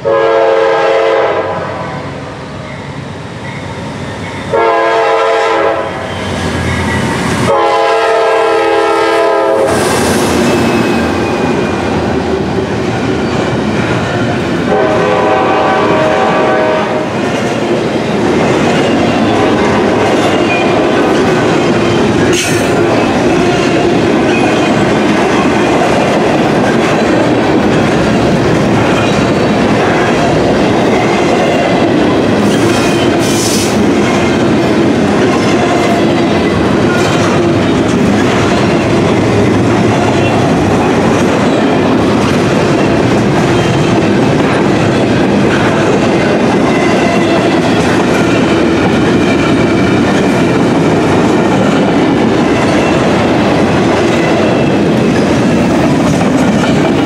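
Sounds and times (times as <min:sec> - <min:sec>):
train wheels rumbling on rails: 0:00.0 - 0:57.0
wheels clacking over rail joints: 0:17.2 - 0:57.0.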